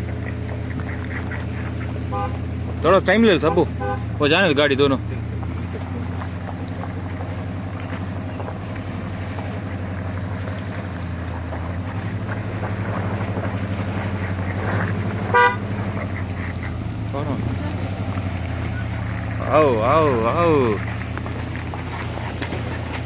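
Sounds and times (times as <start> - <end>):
car engine running: 0.0 - 23.0
car horn toot: 2.0 - 2.6, 3.5 - 4.2, 15.2 - 15.8.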